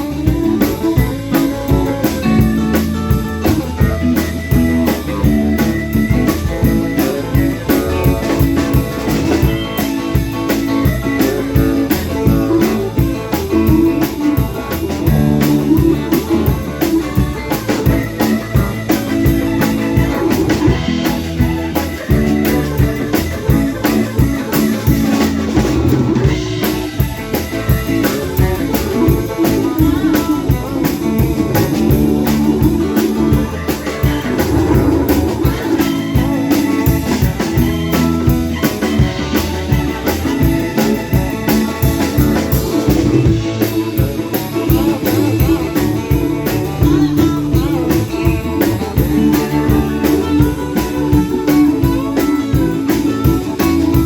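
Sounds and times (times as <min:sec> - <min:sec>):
drum kit beat: 0:00.0 - 0:54.0
electric guitar rock music: 0:00.0 - 0:54.0.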